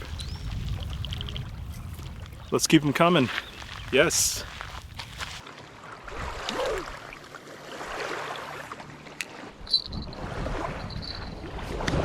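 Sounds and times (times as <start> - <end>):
wind on microphone: 0.0 - 5.4, 9.6 - 12.0
water lapping on shore: 0.0 - 12.0.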